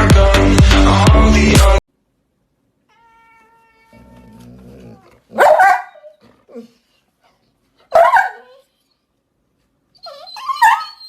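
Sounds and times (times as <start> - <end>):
dog barking: 5.3 - 6.1, 7.9 - 8.6.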